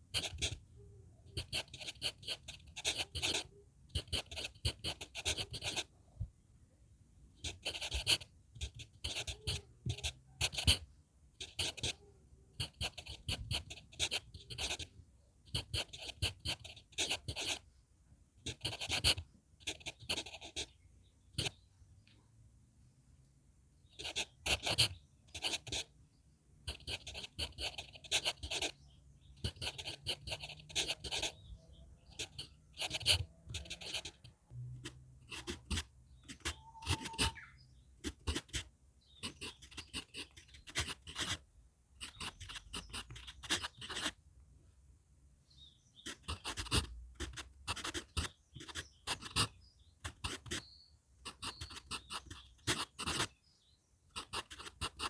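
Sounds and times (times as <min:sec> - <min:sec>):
pencil writing on paper: 0:00.1 - 0:00.6, 0:01.3 - 0:05.9, 0:07.4 - 0:14.9, 0:15.5 - 0:17.6, 0:18.5 - 0:20.8, 0:24.0 - 0:25.9, 0:26.7 - 0:28.8, 0:29.4 - 0:37.4, 0:38.0 - 0:41.4, 0:42.0 - 0:44.2, 0:46.0 - 0:53.3, 0:54.2 - 0:55.0.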